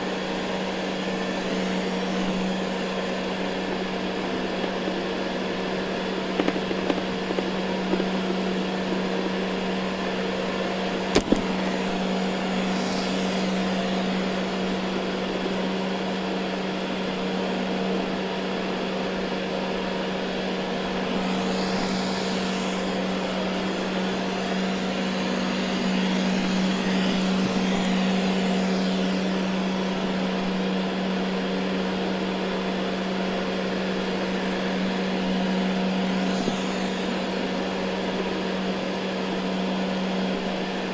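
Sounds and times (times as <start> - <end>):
robot vacuum running over carpet: 0.0 - 40.9
sharp click: 11.1 - 11.5.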